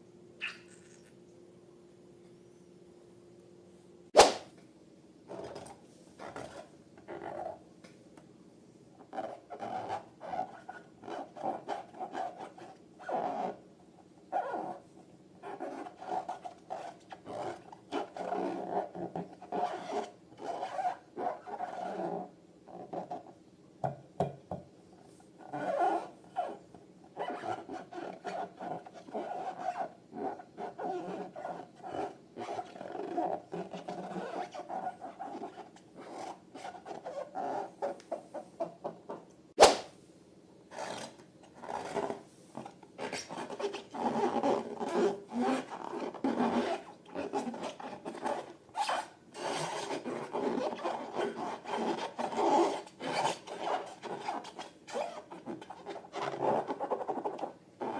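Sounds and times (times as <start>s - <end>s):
squeaky rubber and slime squishing: 0.4s - 1.1s, 14.3s - 14.8s, 15.4s - 23.3s, 25.4s - 26.6s, 27.2s - 39.9s, 40.7s - 57.9s.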